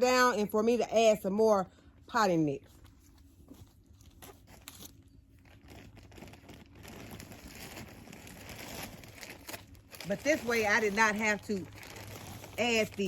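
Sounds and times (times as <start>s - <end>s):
plastic bag crinkling: 2.8s - 13.0s.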